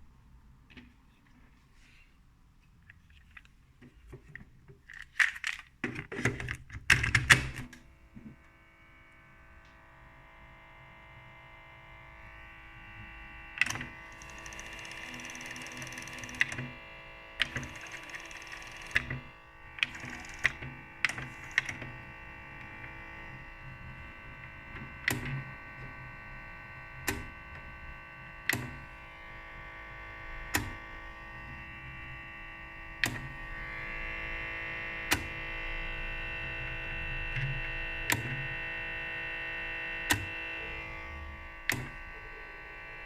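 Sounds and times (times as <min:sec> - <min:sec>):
humming tone of tape mechanism: 0:12.2 - 0:43.0.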